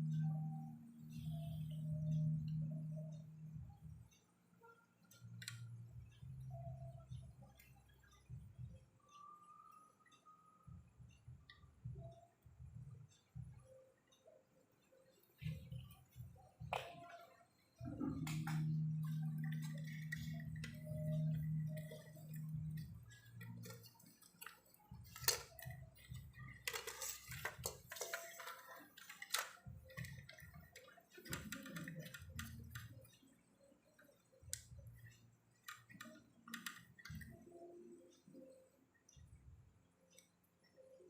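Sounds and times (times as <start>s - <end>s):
steady low hum: 15.4s - 26.7s
tools and small parts rattling: 26.4s - 32.8s.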